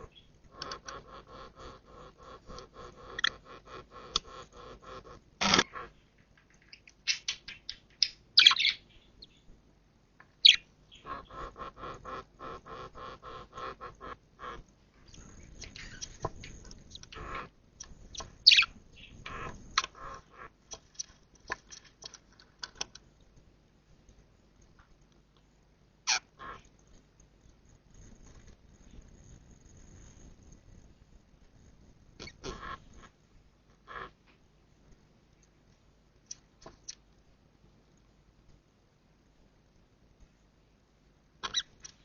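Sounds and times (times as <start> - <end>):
budgerigars chirping: 0.0 - 5.1, 7.1 - 9.4, 10.4 - 14.6, 18.1 - 20.5, 41.4 - 41.8.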